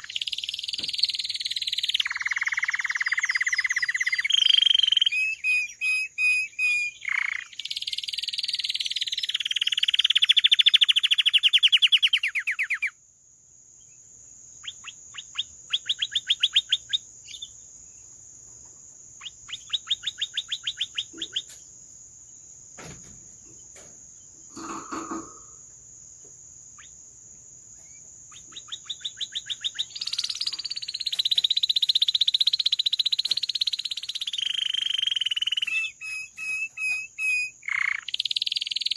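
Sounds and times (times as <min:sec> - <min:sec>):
canary singing trills: 0:00.0 - 0:13.0, 0:13.8 - 0:18.2, 0:19.2 - 0:21.7, 0:26.7 - 0:27.0, 0:27.7 - 0:38.9.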